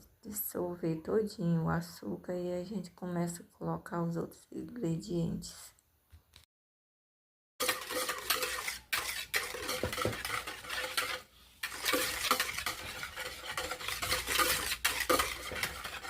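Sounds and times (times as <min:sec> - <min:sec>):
spoon stirring and scraping a bowl: 0:07.6 - 0:16.0.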